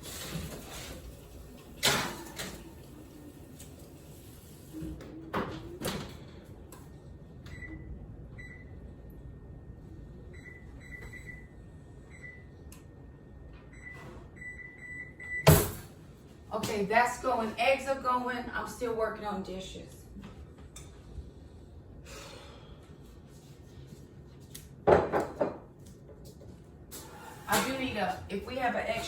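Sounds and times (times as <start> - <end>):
appliance keypad beeps: 13.7 - 15.6
dishes and cupboards knocking: 24.9 - 25.6.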